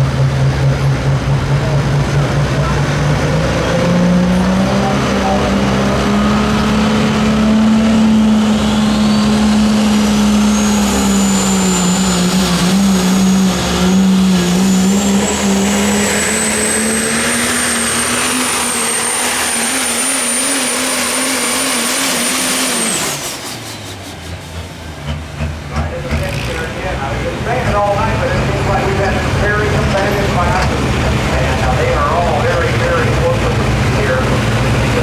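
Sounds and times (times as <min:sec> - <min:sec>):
diesel truck engine running: 0:00.0 - 0:35.0
turbocharger whistle: 0:08.2 - 0:24.1.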